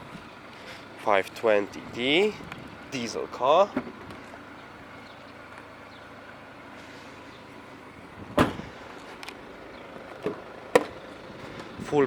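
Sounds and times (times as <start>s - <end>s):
car door clunk: 8.3s - 8.8s, 10.1s - 11.0s.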